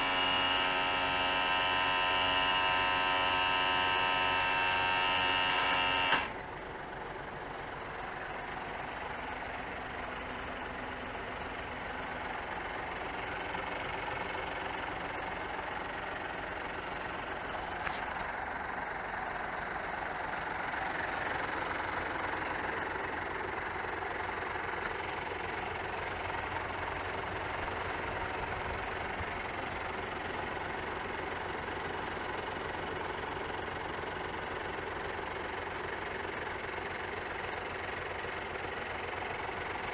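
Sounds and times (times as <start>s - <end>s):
motor hum: 0.0s - 6.5s
diesel engine idling: 0.0s - 39.9s.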